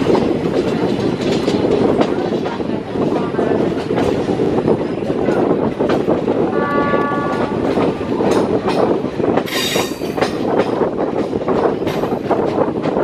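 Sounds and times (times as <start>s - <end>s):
train wheels rumbling and clattering: 0.0s - 13.0s
multi-tone train horn: 6.5s - 8.6s.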